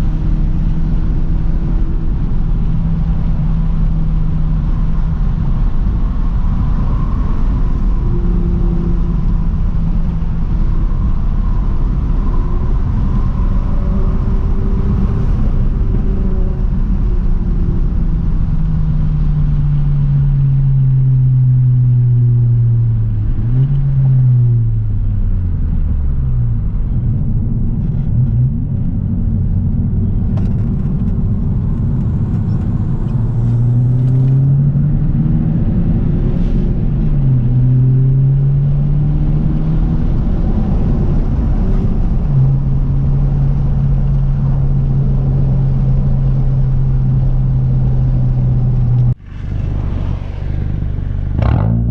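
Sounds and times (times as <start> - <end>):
car engine exhaust revving: 27.9 - 51.9.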